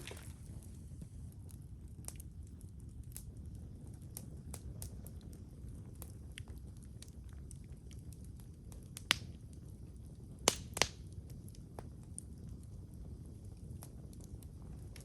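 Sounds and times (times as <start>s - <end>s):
loud sharp pops from fire: 0.0s - 1.4s, 4.1s - 9.4s, 10.3s - 12.4s
wood fire crackling: 0.0s - 15.0s.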